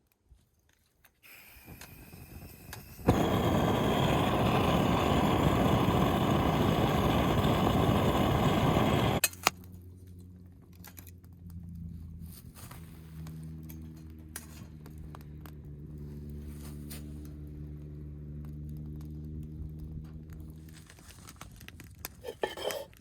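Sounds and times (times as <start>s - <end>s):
gas torch hissing: 1.2s - 9.2s
gas torch jet roaring: 1.3s - 9.2s
torch igniting click: 1.3s - 9.2s.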